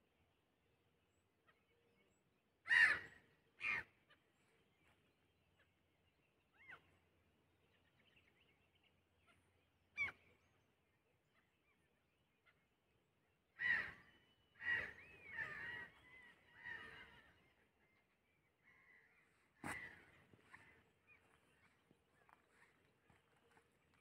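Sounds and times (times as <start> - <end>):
wild birds calling: 2.6 - 10.6, 11.3 - 24.0.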